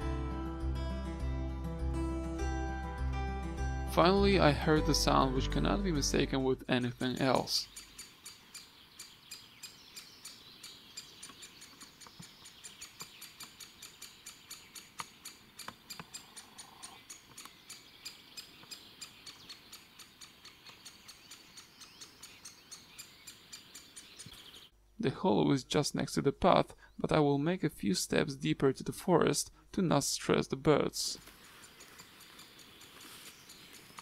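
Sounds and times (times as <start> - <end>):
woodpecker nestling squeaking: 6.9 - 24.7, 31.2 - 34.0.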